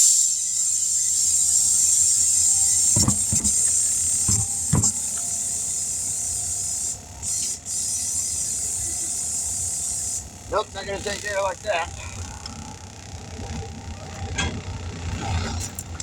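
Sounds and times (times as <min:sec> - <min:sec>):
air hose hissing: 0:00.0 - 0:11.5
knocks: 0:02.9 - 0:05.0.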